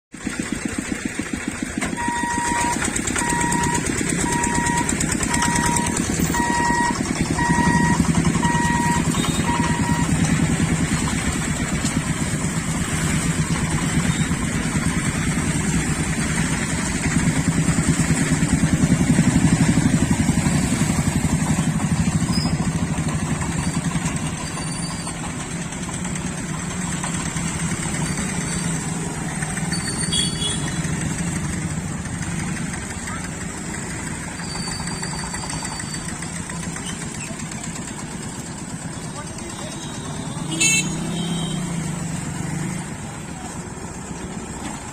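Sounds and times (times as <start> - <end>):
vehicle engines droning: 0.2 - 44.9
electronic beep: 1.9 - 10.3.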